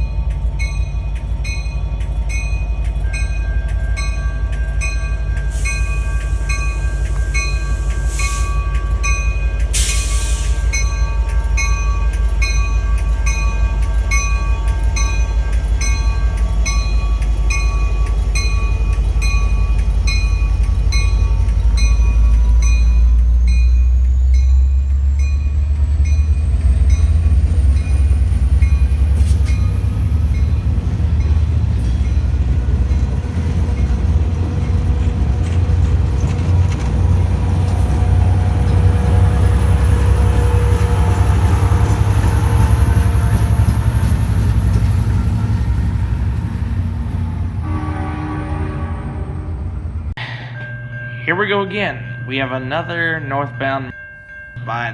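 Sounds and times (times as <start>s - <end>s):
diesel train engine rumble: 0.0s - 54.9s
bell dinging: 50.2s - 54.9s.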